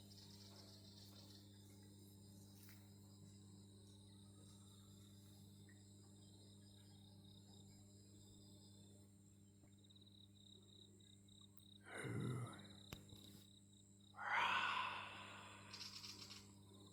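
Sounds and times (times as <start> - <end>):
crickets chirping: 0.0 - 16.9
loud unclear sounds: 14.2 - 16.1.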